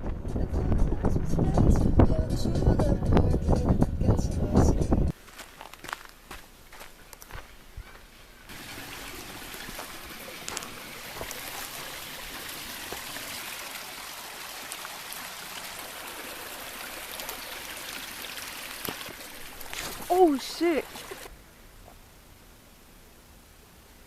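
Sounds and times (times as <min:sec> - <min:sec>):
stream water running: 0:05.1 - 0:22.2.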